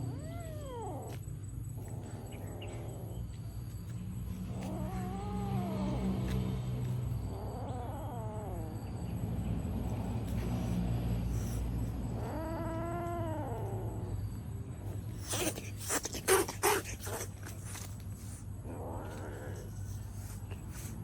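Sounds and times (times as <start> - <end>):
cat yowling: 0.0 - 1.2, 4.4 - 6.4, 7.1 - 9.0, 11.4 - 14.1.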